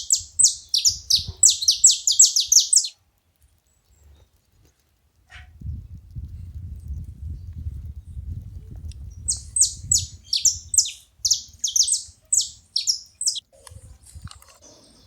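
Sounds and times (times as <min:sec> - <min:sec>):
finch calling sharp chips: 0:00.0 - 0:02.9, 0:09.6 - 0:13.4.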